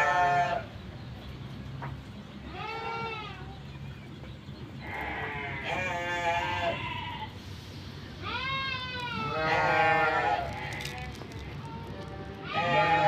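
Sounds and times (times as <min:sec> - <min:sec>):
farm animals bleating: 0:00.0 - 0:00.8, 0:02.4 - 0:03.7, 0:04.7 - 0:07.4, 0:08.2 - 0:13.0.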